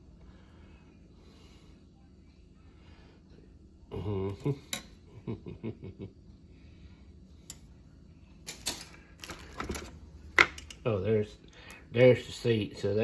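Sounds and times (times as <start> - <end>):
person humming: 3.9 - 4.6.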